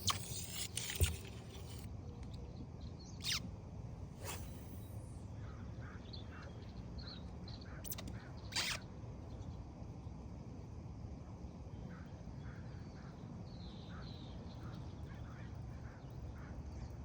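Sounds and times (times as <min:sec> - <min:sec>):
faint bird chirps: 0:03.0 - 0:03.4.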